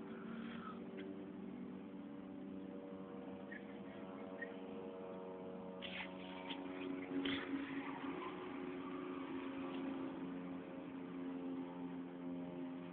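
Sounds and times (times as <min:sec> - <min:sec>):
steady machine hum: 0:00.0 - 0:12.9
brief scratchy noises: 0:05.8 - 0:07.9.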